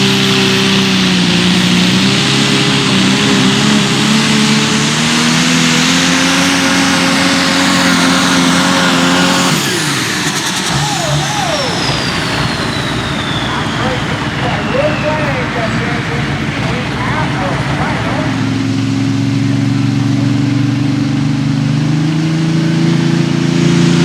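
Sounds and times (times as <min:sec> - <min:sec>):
high turbo whistle: 0:00.0 - 0:19.1
tractor engine at full throttle: 0:00.0 - 0:24.0.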